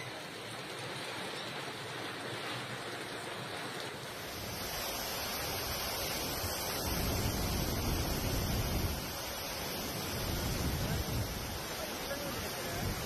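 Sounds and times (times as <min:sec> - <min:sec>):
floodwater rushing: 0:00.0 - 0:13.0
wind buffeting microphone: 0:04.3 - 0:13.0.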